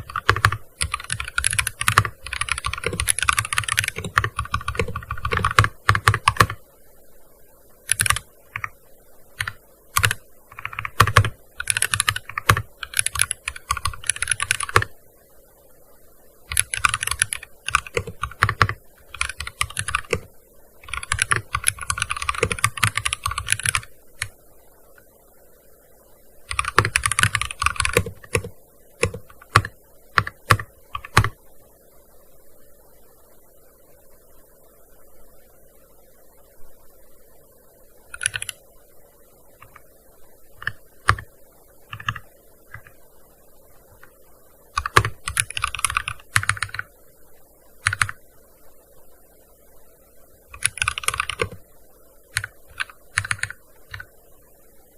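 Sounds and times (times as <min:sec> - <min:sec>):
keyboard typing: 0:00.0 - 0:06.6, 0:07.9 - 0:08.8, 0:09.4 - 0:14.9, 0:16.5 - 0:24.4, 0:26.5 - 0:31.4, 0:38.1 - 0:38.6, 0:39.6 - 0:39.9, 0:40.6 - 0:41.3, 0:41.9 - 0:43.0, 0:44.8 - 0:46.9, 0:47.8 - 0:48.2, 0:50.5 - 0:51.6, 0:52.3 - 0:54.1.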